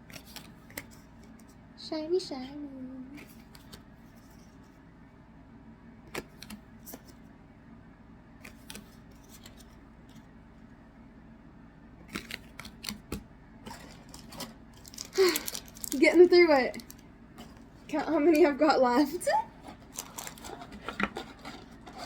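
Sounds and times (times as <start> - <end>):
cards clicking and snapping: 6.1 - 7.2, 8.4 - 9.8, 12.0 - 13.2.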